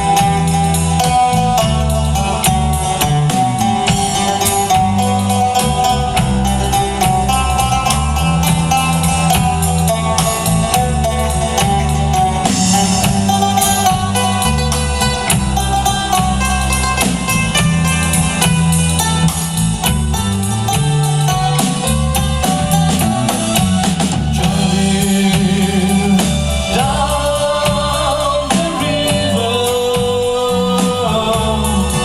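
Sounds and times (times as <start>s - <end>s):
band playing instrumental: 0.0s - 32.0s.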